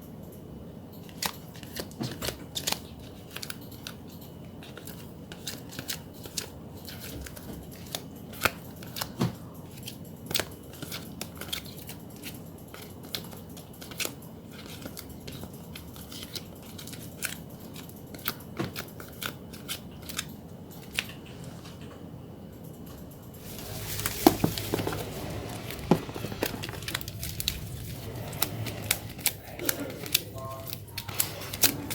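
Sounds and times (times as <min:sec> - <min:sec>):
photocard packaging clicks and snips: 0:01.0 - 0:21.1, 0:28.8 - 0:31.9.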